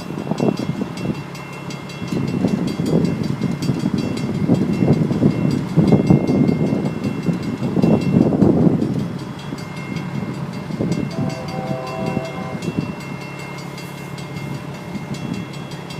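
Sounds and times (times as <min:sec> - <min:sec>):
railcar rumbling past: 0:00.0 - 0:15.9
train wheels clacking on track: 0:00.0 - 0:15.9
faint steady high tone: 0:11.1 - 0:12.9.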